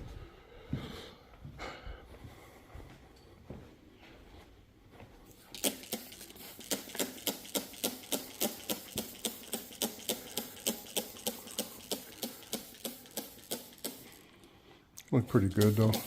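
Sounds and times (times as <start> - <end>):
trigger sprayer spraying: 5.3 - 16.0.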